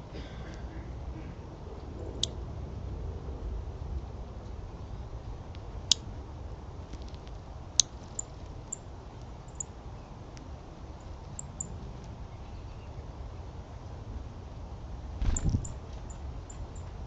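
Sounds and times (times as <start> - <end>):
low outdoor rumble: 0.0 - 17.0
small birds chirping: 6.9 - 13.1, 15.2 - 17.0.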